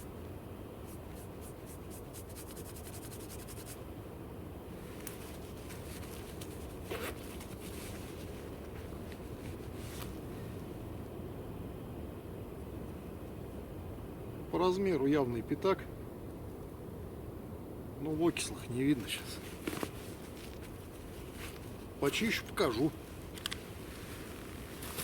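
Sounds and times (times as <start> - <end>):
hands scraping soil off coin: 0.9 - 3.8.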